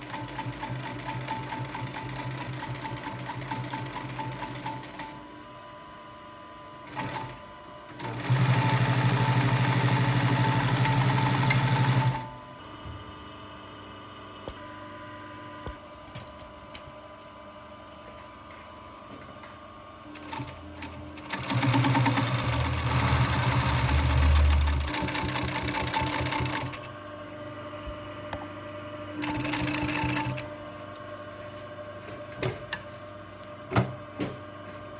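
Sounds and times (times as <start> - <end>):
sewing machine humming: 0.0 - 5.2, 6.8 - 12.4, 20.1 - 27.0, 29.2 - 30.5
sewing machine stitching leather: 20.2 - 26.9, 29.2 - 30.4.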